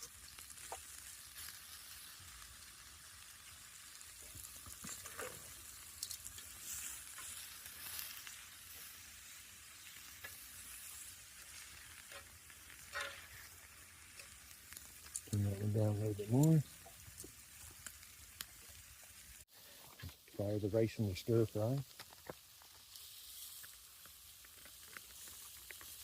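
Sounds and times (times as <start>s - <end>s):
vegetables sizzling in a pan: 0.0s - 20.0s, 21.1s - 26.0s
utensil scraping a pan: 10.2s - 14.4s.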